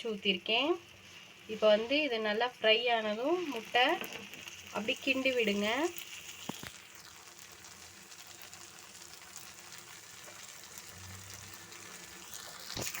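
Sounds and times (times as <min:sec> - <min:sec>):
egg sizzling in oil: 0:00.0 - 0:13.0.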